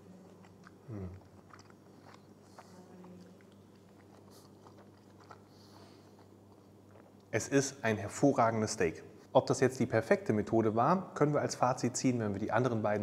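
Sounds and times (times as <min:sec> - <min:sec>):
man chewing: 0:00.0 - 0:07.3
low steady hum: 0:00.0 - 0:13.0.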